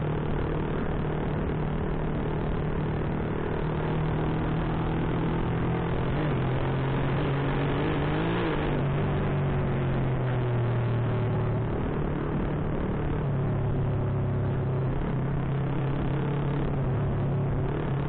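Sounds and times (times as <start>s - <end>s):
motorcycle engine cruising: 0.0s - 18.0s.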